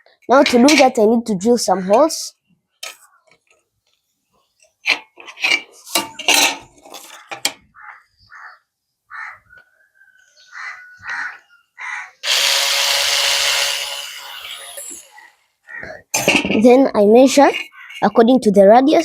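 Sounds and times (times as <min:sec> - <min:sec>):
bird calls: 0:01.7 - 0:04.7, 0:07.0 - 0:12.2, 0:15.0 - 0:16.2, 0:17.5 - 0:18.2
power drill running: 0:12.2 - 0:15.4
tools knocking and clinking: 0:16.1 - 0:16.6.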